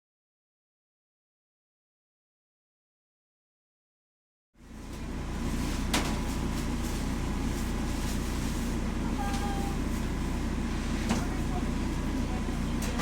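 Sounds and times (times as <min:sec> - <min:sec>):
vehicle engine rumble: 0:04.6 - 0:13.0.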